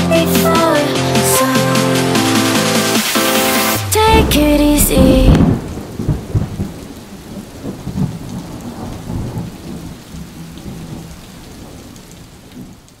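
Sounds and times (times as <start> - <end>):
rain falling: 0.0 - 13.0
thunder rumbling: 3.5 - 12.8.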